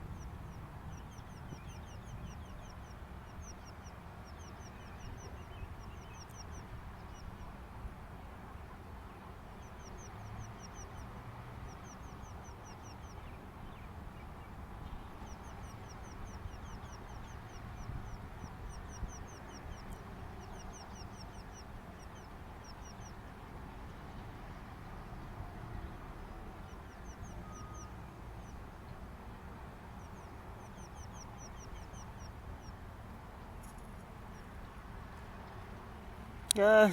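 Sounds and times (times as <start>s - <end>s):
small bird singing: 0.0s - 7.5s, 9.6s - 23.2s, 26.6s - 28.8s, 29.9s - 32.8s
low background hiss: 0.0s - 36.9s.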